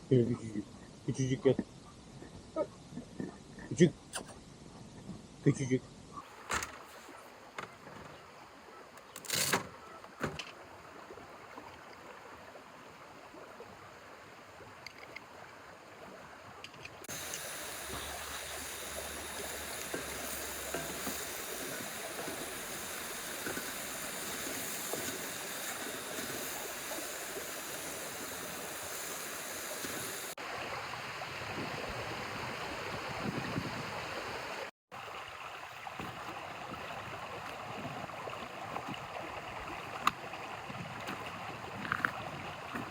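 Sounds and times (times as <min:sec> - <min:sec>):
river water rushing: 0:17.1 - 0:33.2.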